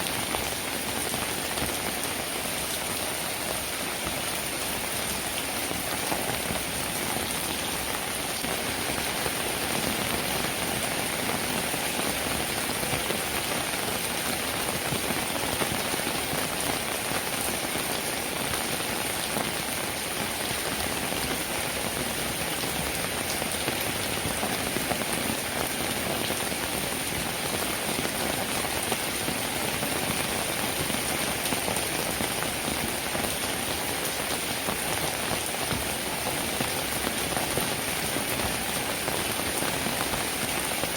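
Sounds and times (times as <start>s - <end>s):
steady rainfall: 0.0s - 40.9s.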